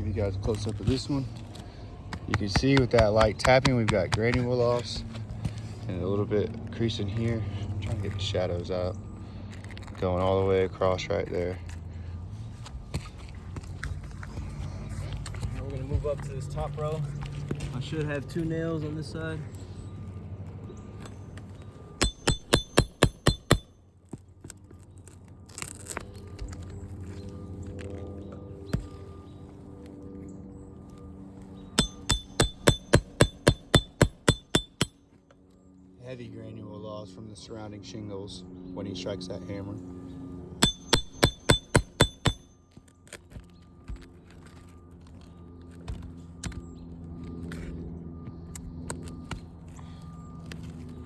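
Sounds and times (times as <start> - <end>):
hammer striking metal tool: 22.0 - 23.7, 31.8 - 35.0, 40.6 - 42.5.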